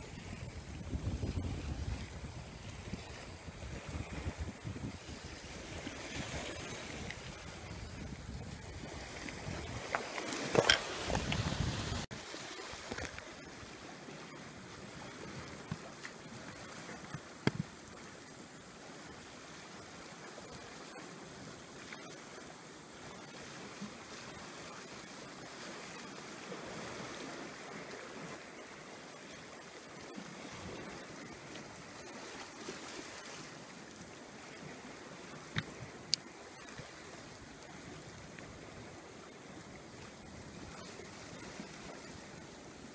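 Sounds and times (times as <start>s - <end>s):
sea water lapping breakwater: 0.0s - 42.9s.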